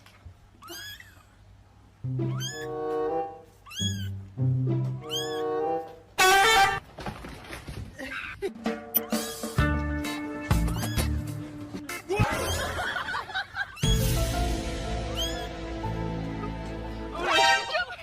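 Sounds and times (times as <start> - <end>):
cat meowing: 0.6 - 1.3, 2.2 - 2.8, 3.6 - 4.2, 5.0 - 5.6, 10.6 - 11.2, 15.1 - 15.6
background music: 2.0 - 6.8, 8.5 - 18.0.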